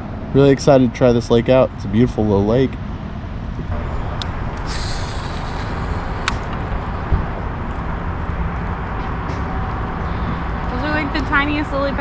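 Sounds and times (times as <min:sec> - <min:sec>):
sharp click: 0:04.2 - 0:06.6.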